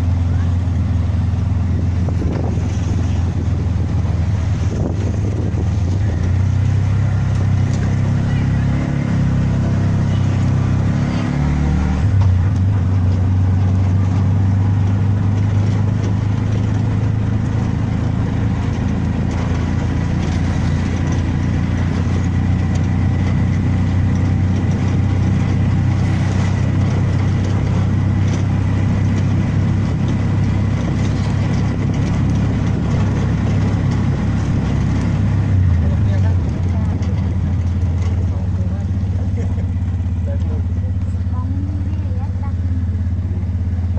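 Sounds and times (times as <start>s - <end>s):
road noise: 0.0s - 43.9s
vehicle engine humming: 0.0s - 43.9s.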